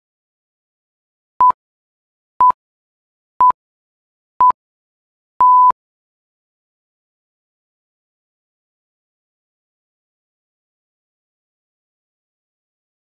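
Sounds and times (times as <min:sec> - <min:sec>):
electronic timer beeps: 0:05.4 - 0:05.7.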